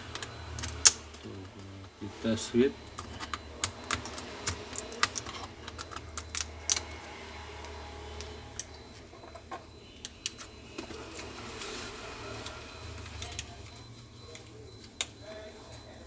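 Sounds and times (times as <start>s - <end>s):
hands handling laptop parts: 2.8s - 7.0s.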